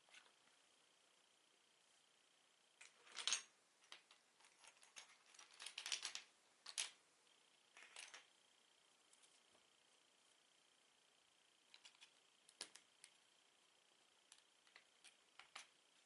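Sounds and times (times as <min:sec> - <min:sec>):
plastic bricks clicking and rattling: 0:02.8 - 0:07.0.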